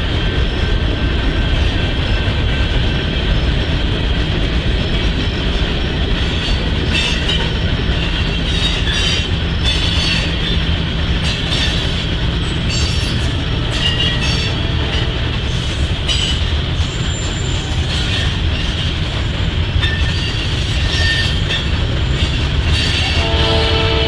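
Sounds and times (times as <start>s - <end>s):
train wheels rumbling on rail: 0.0s - 24.0s
high wheel squeals: 6.2s - 19.0s, 19.8s - 23.4s
locomotive air horn: 13.6s - 15.4s, 23.0s - 24.0s.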